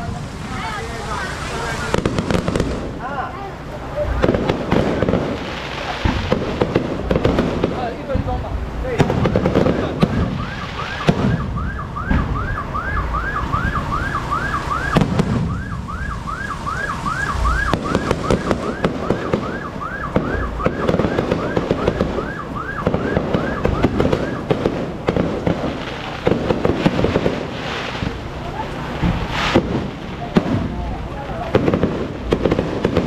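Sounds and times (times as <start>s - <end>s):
fireworks pops: 0.0s - 3.1s, 4.1s - 33.0s
crowd noise: 0.0s - 33.0s
electronic siren yelping: 9.6s - 24.6s.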